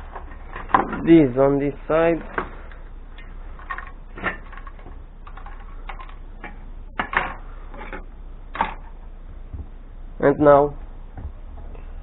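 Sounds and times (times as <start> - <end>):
electronic parts clicking and knocking: 2.2 - 9.0.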